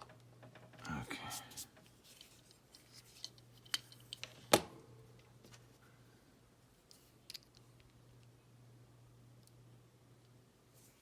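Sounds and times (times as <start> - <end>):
faint low hum: 0.0 - 11.0
light clicks of small parts: 6.8 - 8.4.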